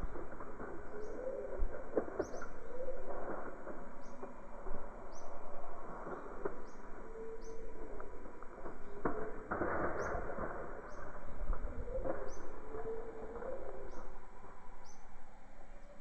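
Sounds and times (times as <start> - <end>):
constant rushing noise: 0.0 - 14.5
birds chirping: 0.0 - 16.0
low cooing notes: 11.6 - 14.6.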